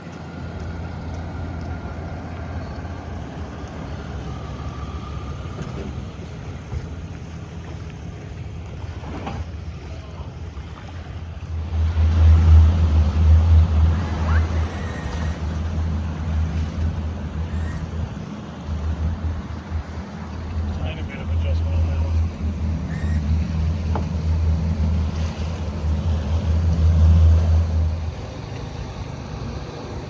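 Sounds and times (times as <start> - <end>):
engine low drone: 0.0 - 30.0.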